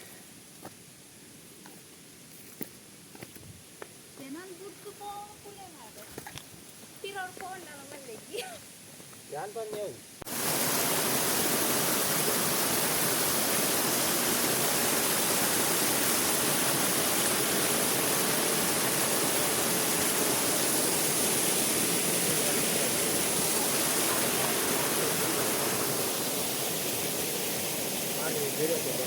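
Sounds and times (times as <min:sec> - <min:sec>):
rushing water: 0:10.2 - 0:29.0.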